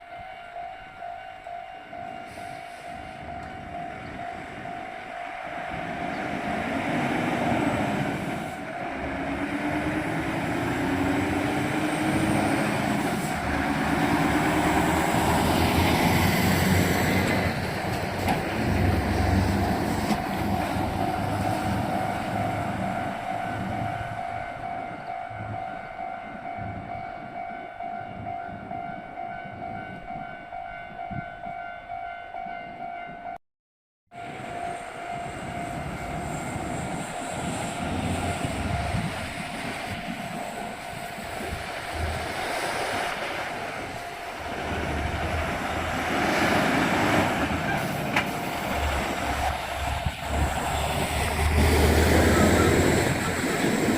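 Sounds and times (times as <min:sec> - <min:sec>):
trucks whining: 0:03.4 - 0:24.2, 0:34.2 - 0:53.9.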